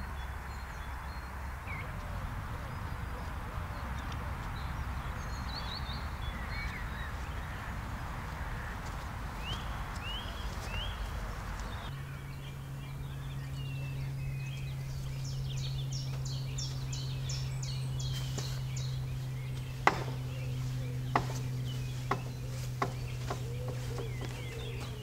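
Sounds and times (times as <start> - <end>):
low hum: 0.0 - 25.0
songbirds singing: 0.0 - 25.0
sharp knocks: 19.8 - 20.4, 21.1 - 24.3.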